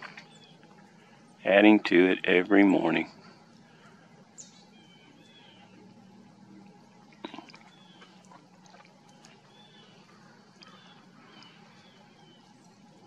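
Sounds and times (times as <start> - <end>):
distant bird chirps: 3.2 - 6.1, 7.2 - 12.9.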